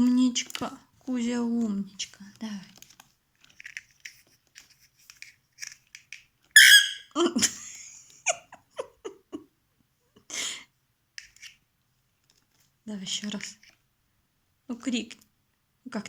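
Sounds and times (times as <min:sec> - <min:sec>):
bird raspy screech: 0:06.6 - 0:07.1
bird squawk: 0:06.6 - 0:07.1.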